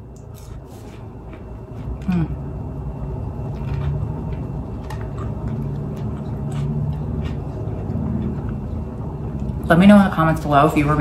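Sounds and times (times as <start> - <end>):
low steady hum: 0.0 - 11.0
person chewing with mouth clicks: 3.4 - 9.6.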